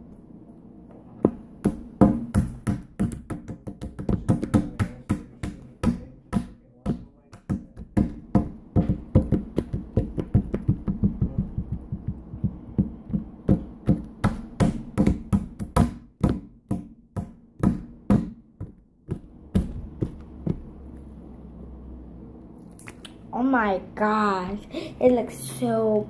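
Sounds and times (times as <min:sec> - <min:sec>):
sharp taps and knocks: 0:01.2 - 0:21.0.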